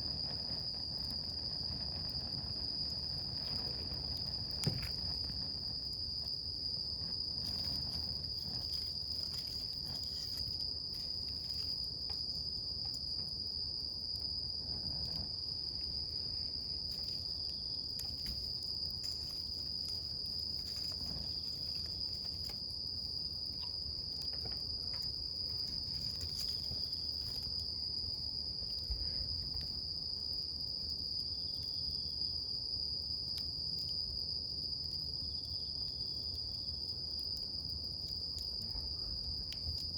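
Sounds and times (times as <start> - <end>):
campfire crackling: 0.0 - 31.1
high-pitched insect trill: 0.0 - 39.9.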